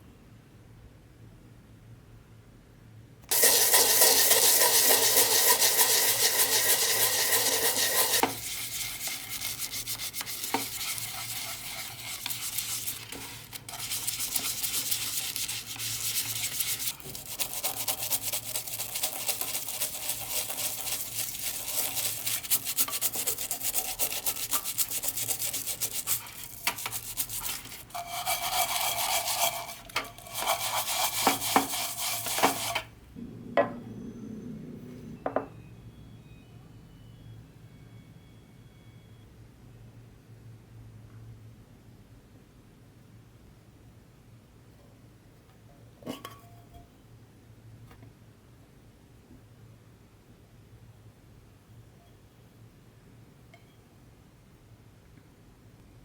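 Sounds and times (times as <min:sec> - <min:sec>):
scratchy rubbing on brass: 0:03.3 - 0:32.9.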